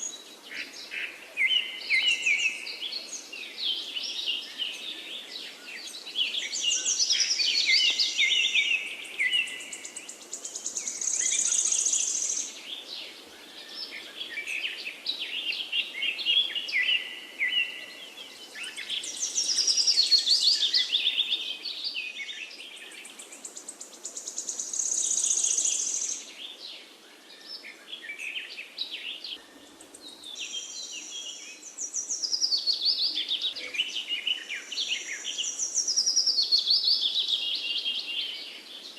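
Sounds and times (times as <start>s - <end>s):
faint steady hiss: 0.0s - 38.9s
forest birds singing: 0.0s - 38.9s.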